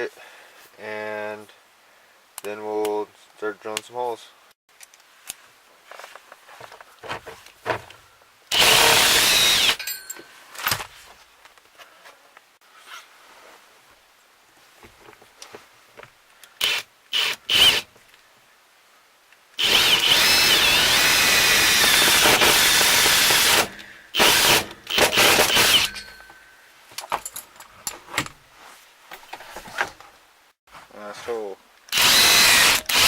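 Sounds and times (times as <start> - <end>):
power drill boring: 8.5 - 9.8, 16.6 - 17.8, 19.6 - 26.0, 31.9 - 33.0.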